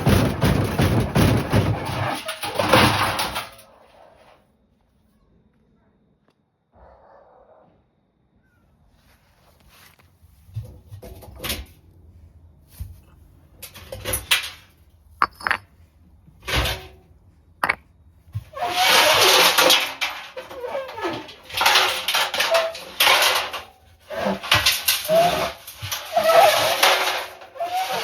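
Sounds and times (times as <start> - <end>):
washing machine grinding and squealing: 0.0 - 3.5, 18.4 - 28.0
knocks and clatters: 0.0 - 3.7, 13.6 - 17.0, 17.6 - 28.0.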